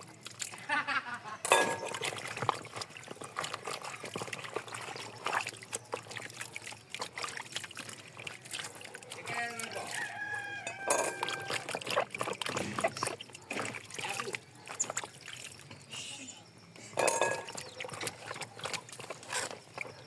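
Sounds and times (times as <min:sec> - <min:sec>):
water pouring and trickling: 0:00.0 - 0:20.0
chicken calling: 0:09.3 - 0:11.7
small clinks and knocks: 0:09.6 - 0:11.6, 0:17.0 - 0:19.9.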